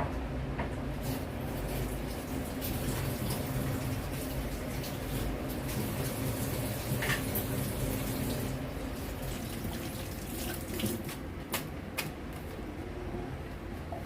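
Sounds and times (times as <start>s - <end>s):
tap water running into sink: 1.0s - 11.2s.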